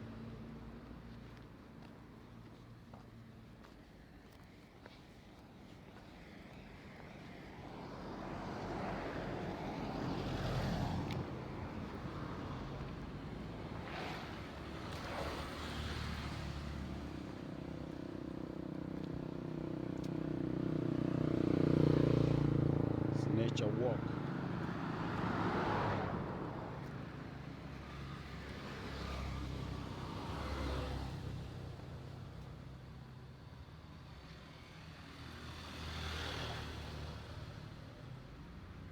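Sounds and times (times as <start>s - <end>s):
vehicle passing by: 8.1s - 18.0s, 19.6s - 32.3s, 34.6s - 37.8s.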